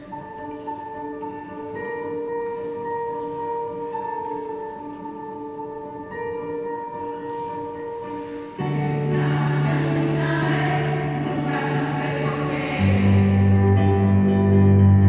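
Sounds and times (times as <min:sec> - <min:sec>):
choir singing with accompaniment: 0:08.1 - 0:14.6.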